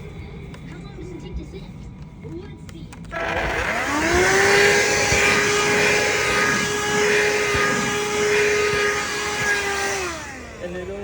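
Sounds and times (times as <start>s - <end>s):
handheld vacuum cleaner whining: 3.0s - 11.0s.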